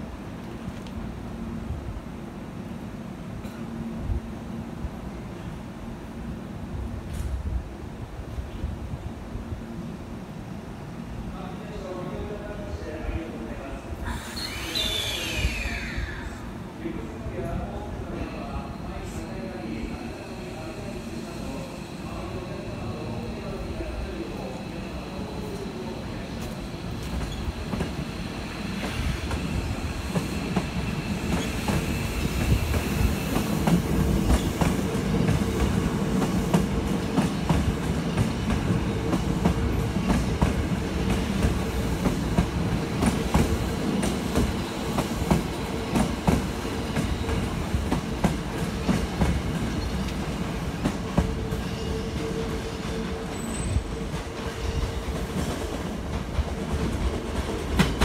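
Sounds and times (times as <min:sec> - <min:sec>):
high wheel squeal: 0:14.1 - 0:16.4.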